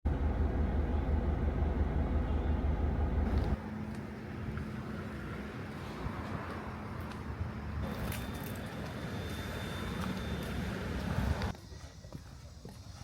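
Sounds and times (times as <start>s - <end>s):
motor vehicle engine rumbling: 0.1s - 11.5s.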